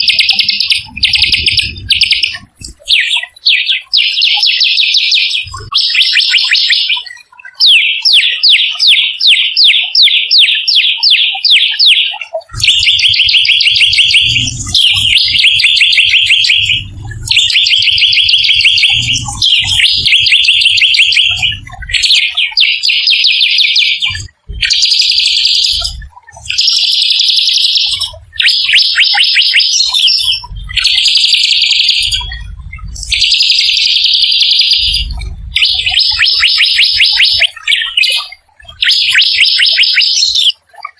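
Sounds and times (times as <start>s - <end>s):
songbird trilling: 0.0s - 40.6s
low rumble: 0.8s - 2.8s, 14.0s - 15.4s, 16.5s - 20.1s, 21.2s - 22.1s, 30.4s - 31.0s, 32.2s - 33.2s.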